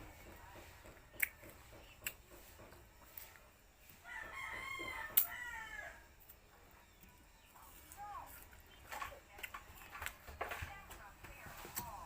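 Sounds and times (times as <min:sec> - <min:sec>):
rooster crowing: 0:04.0 - 0:06.1.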